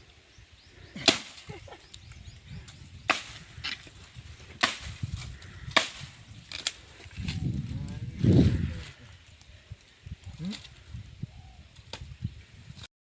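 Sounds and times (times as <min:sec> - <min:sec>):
blade chopping bamboo: 0:01.0 - 0:01.4, 0:03.1 - 0:03.9, 0:04.6 - 0:05.0, 0:05.7 - 0:06.8.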